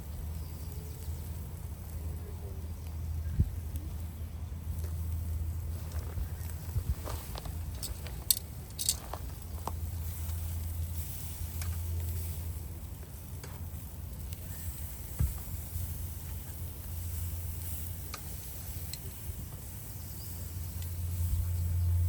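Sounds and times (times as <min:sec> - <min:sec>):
sharp crackles: 0:00.0 - 0:22.0
steady low rumble: 0:00.0 - 0:22.0
meat sizzling on a grill: 0:09.4 - 0:22.0.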